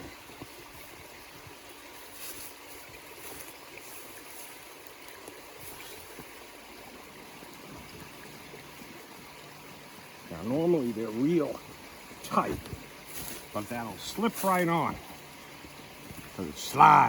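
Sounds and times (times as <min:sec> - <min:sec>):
stream flowing: 0:00.0 - 0:17.0
faint rustles: 0:12.5 - 0:16.4.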